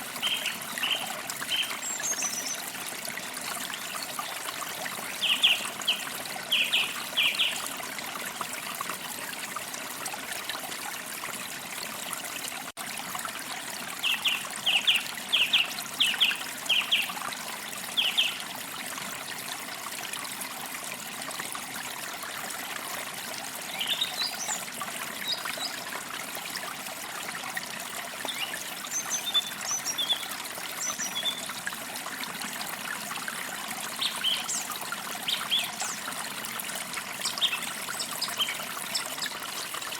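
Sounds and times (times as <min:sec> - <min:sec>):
stream trickling: 0:00.0 - 0:39.9
songbirds singing: 0:00.2 - 0:02.6, 0:05.1 - 0:07.6, 0:14.0 - 0:17.1, 0:17.9 - 0:18.4, 0:23.7 - 0:25.8, 0:28.3 - 0:31.5, 0:34.0 - 0:36.1, 0:37.2 - 0:39.8.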